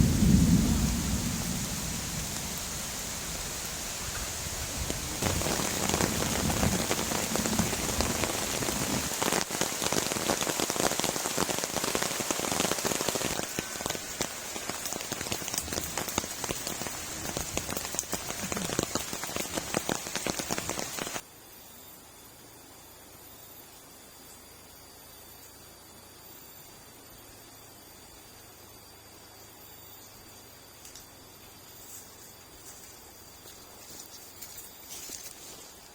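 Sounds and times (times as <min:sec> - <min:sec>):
low rumble: 0:00.0 - 0:08.2
heavy rain falling: 0:00.0 - 0:21.2.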